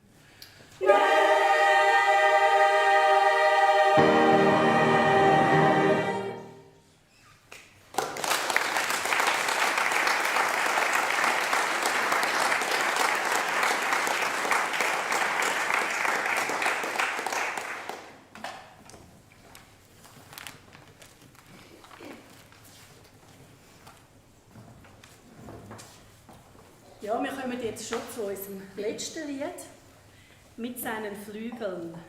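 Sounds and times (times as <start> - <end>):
choir singing a chord: 0.8 - 6.8
audience clapping: 7.5 - 18.3.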